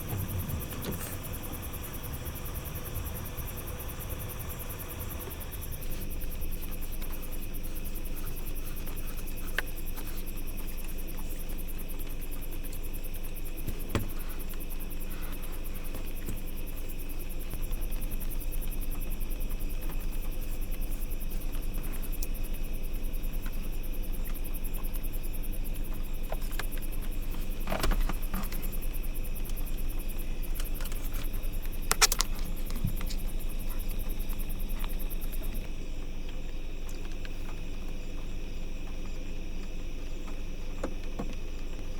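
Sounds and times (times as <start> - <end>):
low hum: 0.0 - 8.8
night insects chirping: 0.0 - 41.9.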